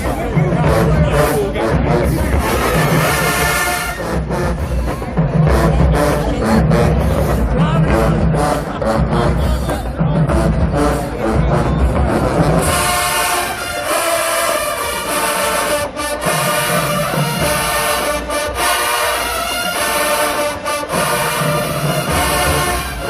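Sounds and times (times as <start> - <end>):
bass drums: 0.0 - 13.6, 20.9 - 23.0
brass section playing chords: 0.5 - 4.9, 10.2 - 23.0.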